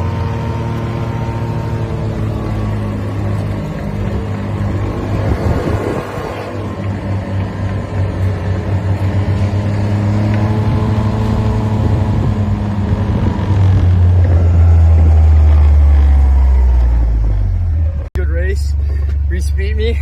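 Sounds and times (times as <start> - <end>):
car engine: 0.0 - 20.0
road rumble: 0.0 - 20.0.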